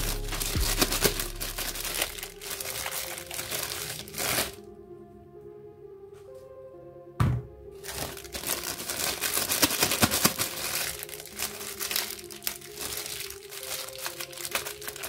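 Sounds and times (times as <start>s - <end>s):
plastic wrapping crinkling: 0.0s - 4.7s, 7.8s - 15.0s.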